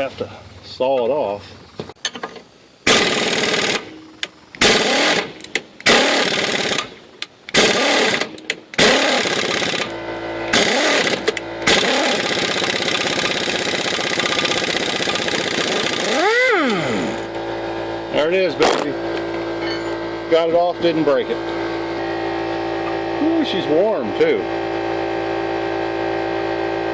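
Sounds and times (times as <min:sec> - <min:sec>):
impact wrench bursts: 0:02.8 - 0:17.4.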